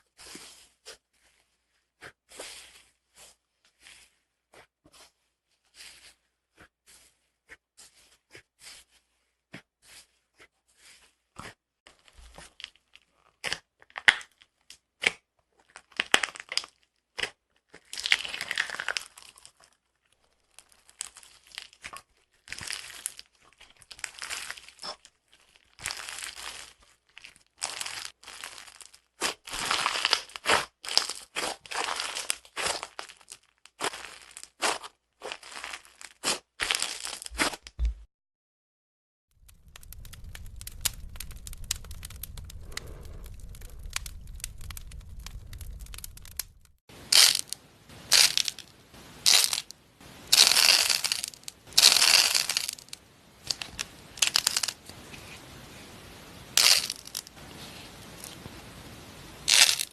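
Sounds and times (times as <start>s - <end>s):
slime crackling and popping: 15.8s - 19.6s, 20.4s - 34.7s, 39.4s - 49.7s, 50.3s - 55.0s, 56.5s - 58.4s, 59.4s - 59.9s.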